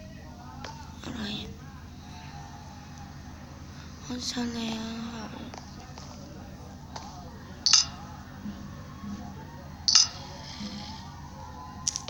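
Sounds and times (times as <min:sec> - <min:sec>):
low background hum: 0:00.0 - 0:12.0
sharp clicks: 0:09.9 - 0:10.2.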